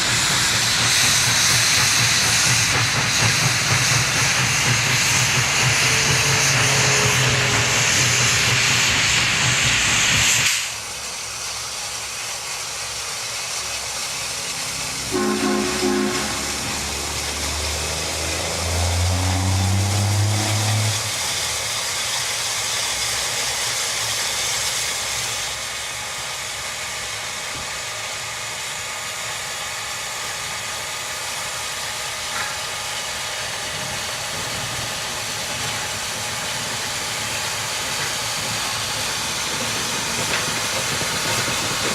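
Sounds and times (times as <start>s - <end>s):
loud hiss: 0.0s - 41.9s
train running: 0.0s - 41.9s
locomotive chime signal: 15.1s - 16.9s.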